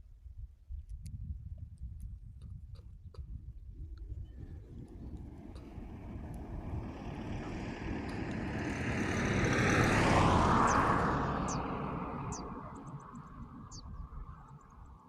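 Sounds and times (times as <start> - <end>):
motor vehicle passing by: 4.4 - 15.0.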